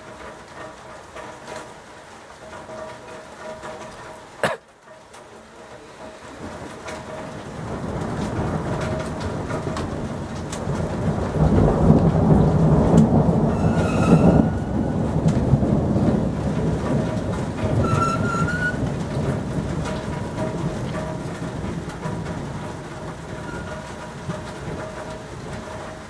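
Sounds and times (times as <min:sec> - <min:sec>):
rain falling: 0:00.0 - 0:26.0
thunder rumbling: 0:06.4 - 0:26.0.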